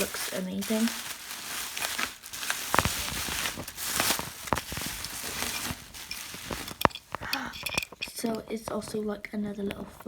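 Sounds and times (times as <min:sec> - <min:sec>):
packaging crinkling and tearing: 0:00.0 - 0:08.0.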